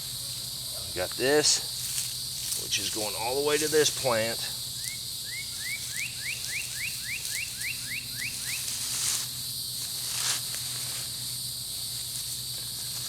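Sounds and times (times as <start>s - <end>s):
steady high hiss: 0.0s - 13.0s
songbird whistling: 4.8s - 8.7s.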